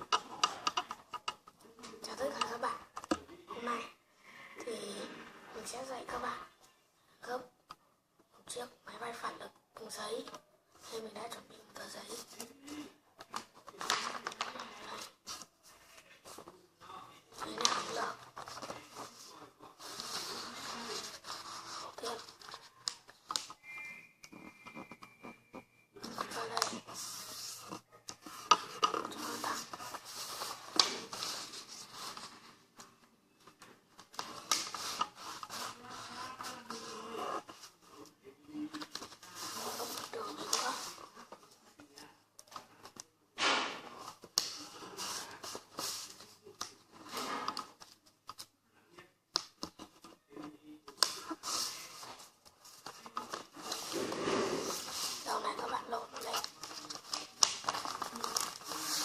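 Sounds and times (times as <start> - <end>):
paper rustling and creasing: 17.3 - 23.6, 24.3 - 43.1, 49.6 - 59.0.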